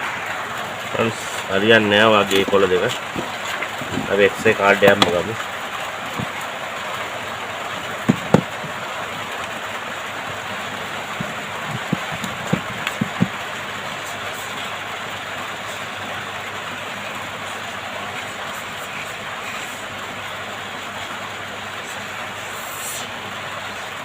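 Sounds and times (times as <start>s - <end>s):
hot air blower hissing: 21.8s - 24.0s.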